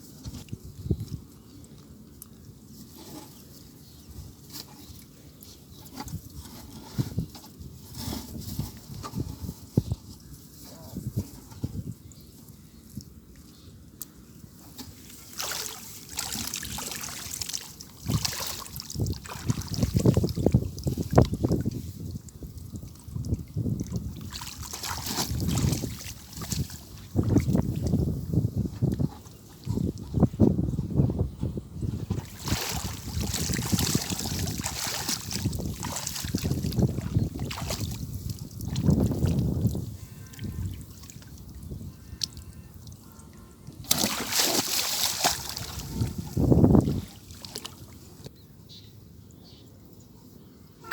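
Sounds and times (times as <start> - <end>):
water splashing and sloshing: 14.5 - 30.3, 31.9 - 48.3.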